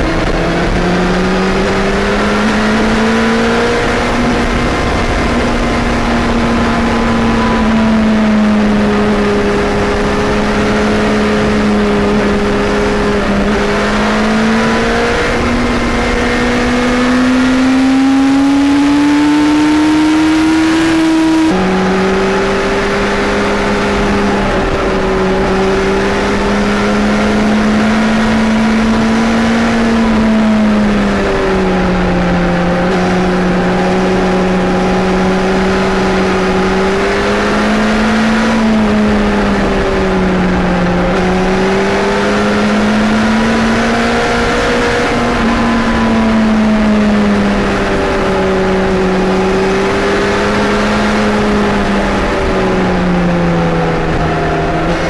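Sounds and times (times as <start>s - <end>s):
wind rush: 0.0s - 19.4s
motorcycle engine revving: 0.0s - 55.0s.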